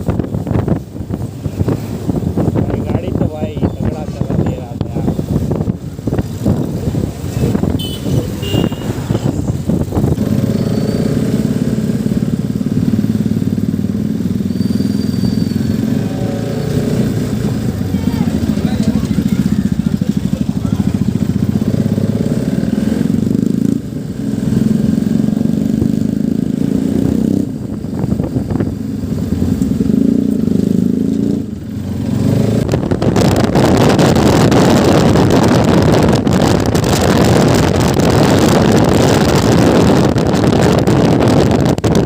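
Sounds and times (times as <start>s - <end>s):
motorcycle engine running: 0.0s - 42.0s
wind noise on microphone: 0.0s - 42.0s.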